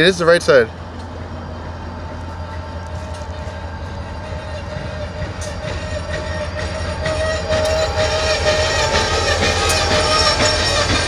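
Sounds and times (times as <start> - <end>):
freight train rumbling: 0.0 - 11.0
thin ringing tone: 2.3 - 11.0.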